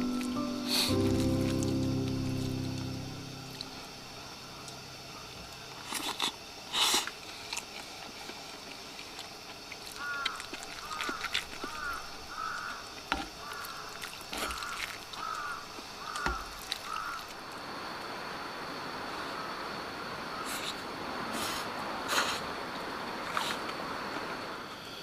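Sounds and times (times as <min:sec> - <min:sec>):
crow cawing: 0:10.0 - 0:17.3.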